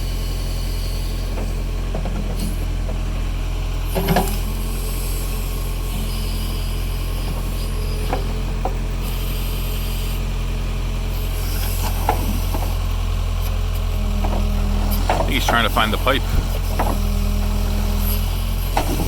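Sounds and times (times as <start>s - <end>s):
backhoe engine droning: 0.0s - 19.0s
machine clunks: 18.7s - 19.0s.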